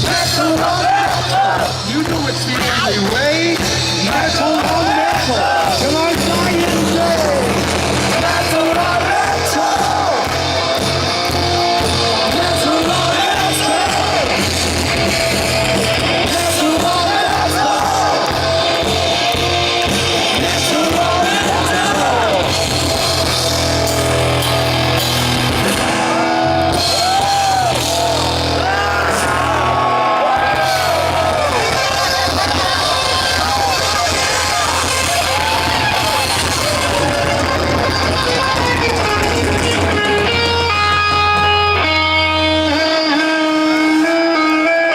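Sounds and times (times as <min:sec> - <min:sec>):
sung and shouted vocals: 0:00.0 - 0:02.0, 0:02.6 - 0:10.9, 0:11.8 - 0:14.6, 0:16.0 - 0:23.3
heavy metal band playing live: 0:00.0 - 0:44.9.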